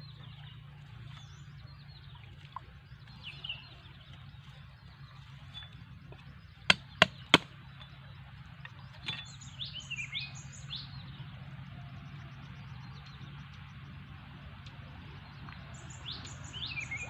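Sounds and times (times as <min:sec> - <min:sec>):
bird chirping gliding notes: 0:00.0 - 0:17.0
low steady hum: 0:00.0 - 0:17.0
tool knocking on bamboo: 0:06.7 - 0:07.6.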